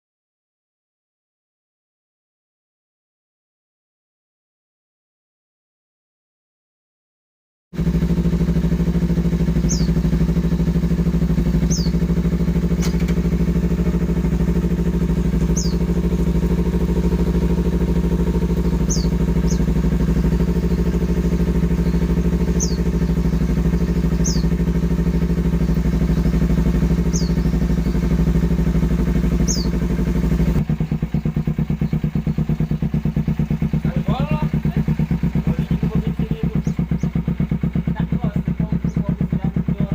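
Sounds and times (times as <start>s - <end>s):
motorcycle idling: 7.8s - 39.9s.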